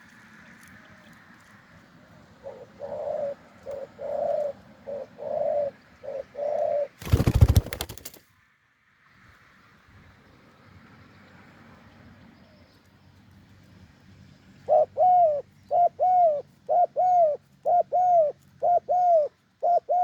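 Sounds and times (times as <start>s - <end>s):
dove cooing: 2.4s - 8.0s, 14.7s - 20.0s.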